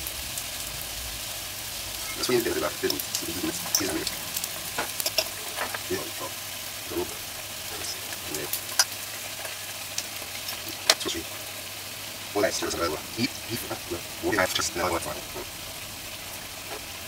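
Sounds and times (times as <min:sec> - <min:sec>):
fritters sizzling in oil: 0:00.0 - 0:17.0
metal spoon clinking and scraping: 0:04.8 - 0:05.8.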